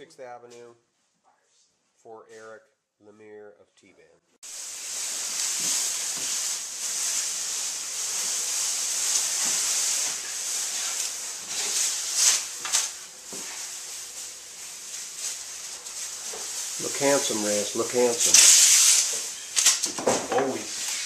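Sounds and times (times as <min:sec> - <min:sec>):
high-pitched hissing: 0:04.4 - 0:21.0.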